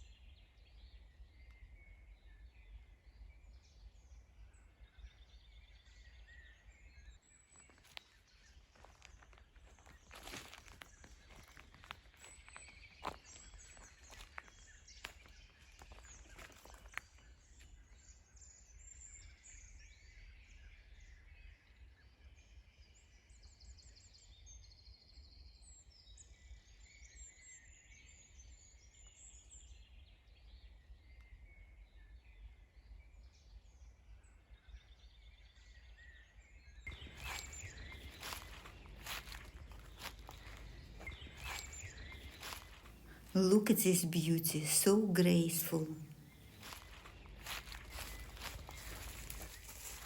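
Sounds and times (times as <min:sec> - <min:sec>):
small birds chirping: 0:36.9 - 0:43.7, 0:46.0 - 0:50.0.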